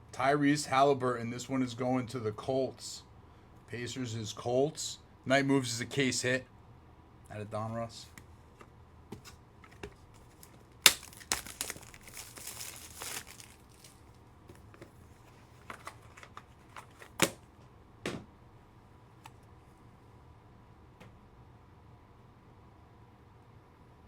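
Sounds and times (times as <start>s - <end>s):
cards clicking and tapping: 9.1s - 15.0s, 15.6s - 17.4s
foil wrapper tearing and crinkling: 10.2s - 14.8s.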